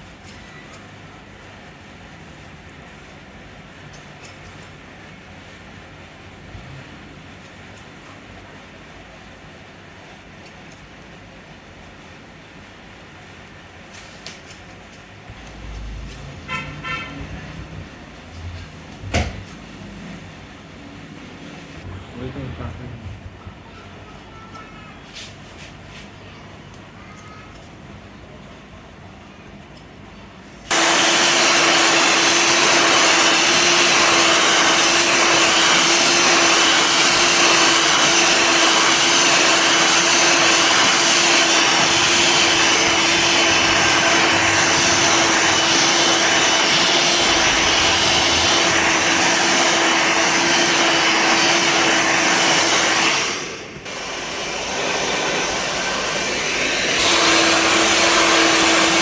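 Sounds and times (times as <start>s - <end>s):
hair dryer blowing: 30.7s - 59.0s.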